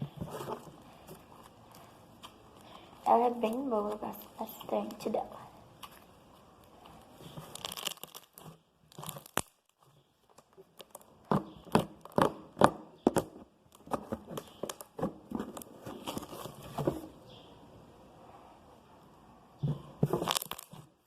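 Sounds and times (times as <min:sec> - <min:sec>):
slime crackling and popping: 0:01.4 - 0:16.3, 0:20.1 - 0:21.0.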